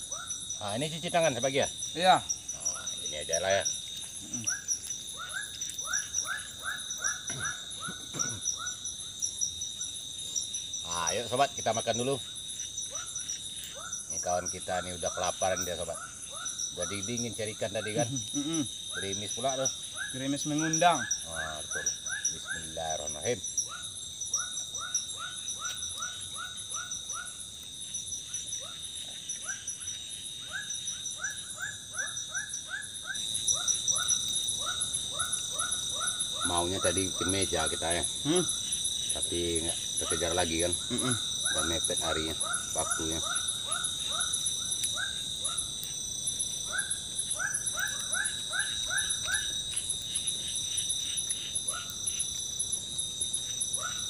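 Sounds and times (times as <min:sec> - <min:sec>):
high insect drone: 0:00.0 - 0:54.0
repeated animal calls: 0:00.0 - 0:54.0
short repeated animal calls: 0:04.2 - 0:08.8.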